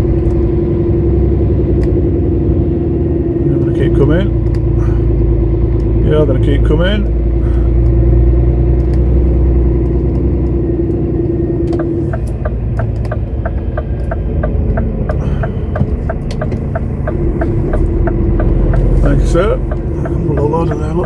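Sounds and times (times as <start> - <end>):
diesel truck engine rumbling: 0.0 - 21.0
regular ticking: 0.0 - 21.0.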